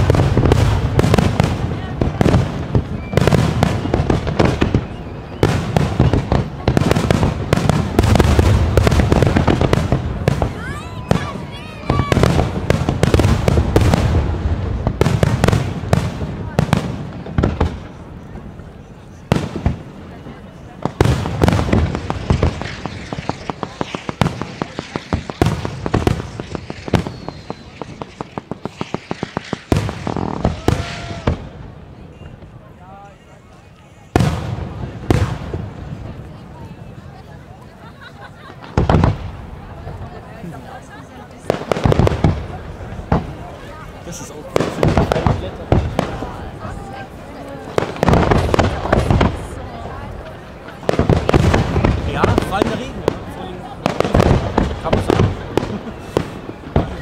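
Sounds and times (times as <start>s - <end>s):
firework bangs and crackling: 0.0s - 57.0s
firework shells bursting: 21.0s - 31.6s.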